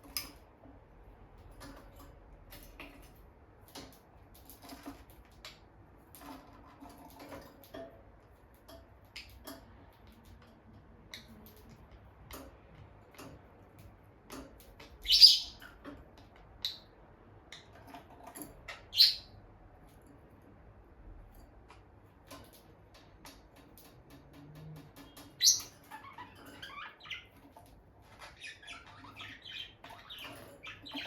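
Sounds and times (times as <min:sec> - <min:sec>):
lovebird chirping: 0:15.0 - 0:15.6, 0:18.7 - 0:19.4, 0:25.4 - 0:27.3.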